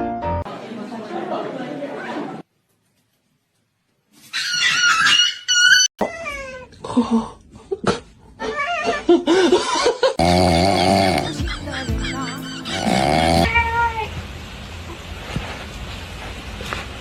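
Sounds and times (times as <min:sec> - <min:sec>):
cat meowing: 0:13.4 - 0:14.2.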